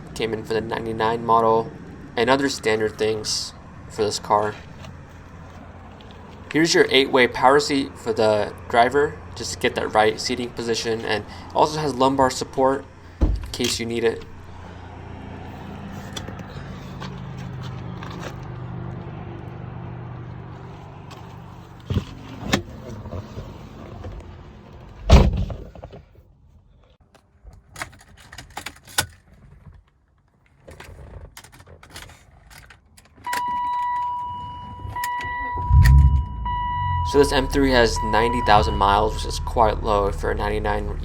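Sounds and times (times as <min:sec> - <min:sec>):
loud thunk: 0:13.2 - 0:13.6, 0:25.1 - 0:25.7.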